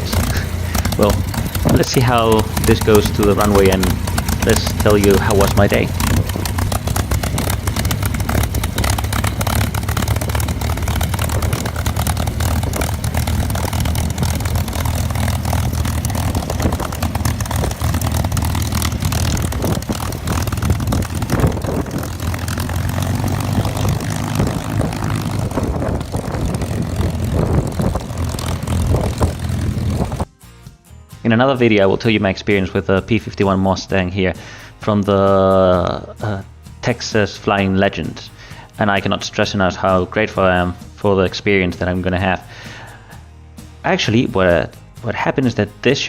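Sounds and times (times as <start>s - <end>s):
propeller aircraft engine droning: 0.0s - 30.3s.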